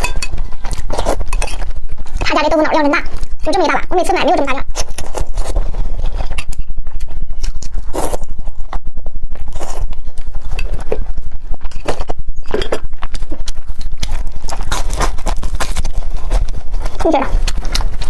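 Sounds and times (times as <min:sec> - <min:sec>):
crunchy chewing: 0:07.0 - 0:18.0.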